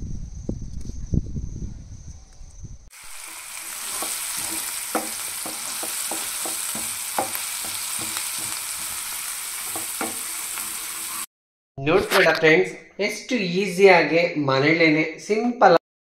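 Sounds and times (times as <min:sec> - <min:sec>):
food sizzling in a pan: 0:02.9 - 0:11.3
spatula scraping a pan: 0:03.2 - 0:11.3.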